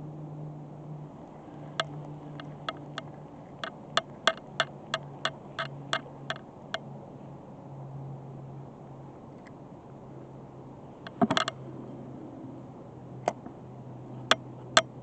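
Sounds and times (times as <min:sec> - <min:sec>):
steady low hum: 0:00.0 - 0:15.0
sharp clicks: 0:01.7 - 0:06.4.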